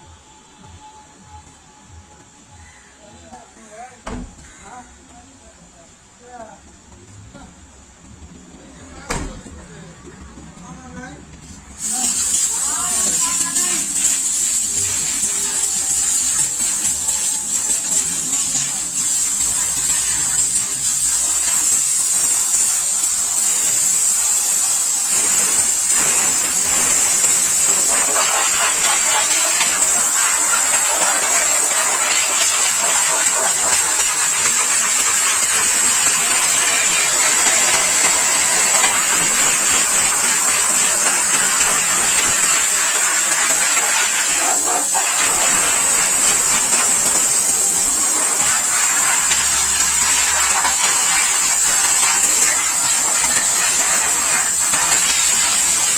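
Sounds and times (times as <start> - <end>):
pressure washer spraying water: 11.7 - 55.9.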